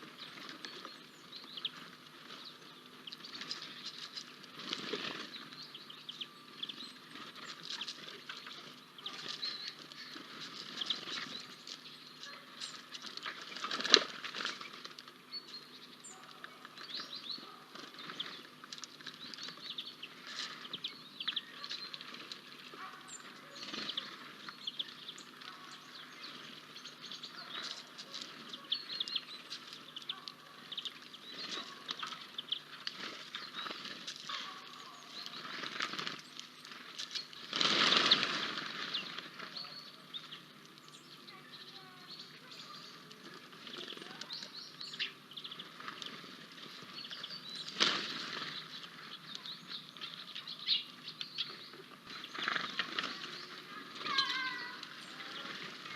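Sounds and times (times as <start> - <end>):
faint bird chirps: 0.0 - 55.9
bird wing flutters: 3.2 - 5.6, 12.7 - 15.2, 31.3 - 39.6, 45.6 - 49.2, 52.1 - 55.9.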